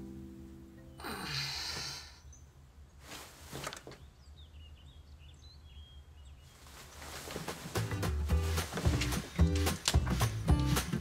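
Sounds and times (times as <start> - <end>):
faint bird chirps: 0.8 - 3.1, 3.9 - 7.2.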